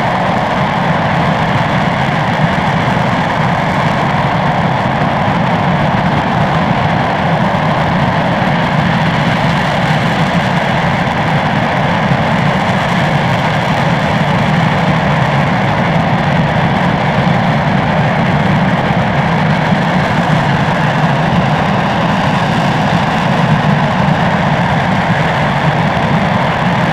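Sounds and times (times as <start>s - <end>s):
rocket engine roaring: 0.0s - 26.9s.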